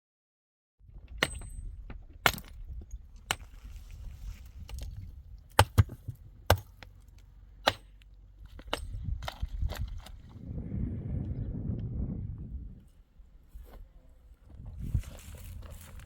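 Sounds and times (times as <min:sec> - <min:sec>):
low rumbling background: 0:00.8 - 0:16.0.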